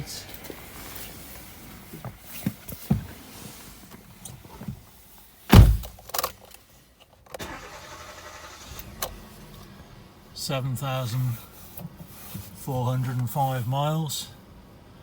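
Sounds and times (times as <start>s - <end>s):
heavy low thud: 5.5s - 6.0s.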